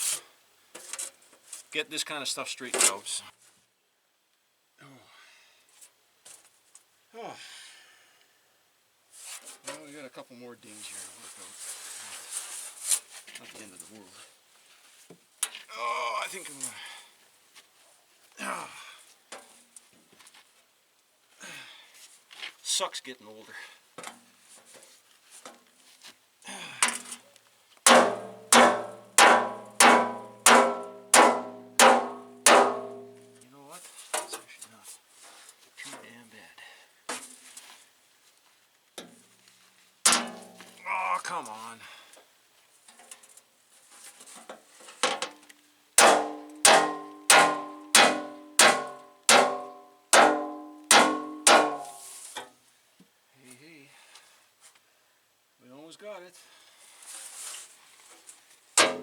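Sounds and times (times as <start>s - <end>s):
sledgehammer pounding metal: 27.9s - 33.2s, 46.0s - 52.0s, 58.8s - 59.0s
metal ringing: 27.9s - 33.4s, 46.0s - 52.1s, 58.8s - 59.0s.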